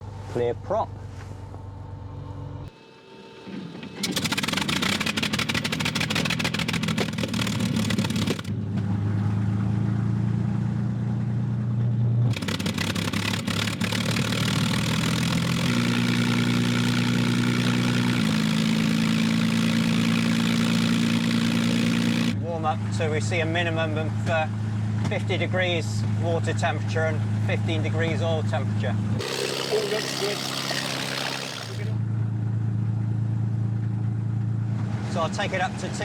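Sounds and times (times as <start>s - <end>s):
aircraft engine starting up: 2.7s - 8.6s, 12.3s - 22.4s, 29.2s - 32.0s.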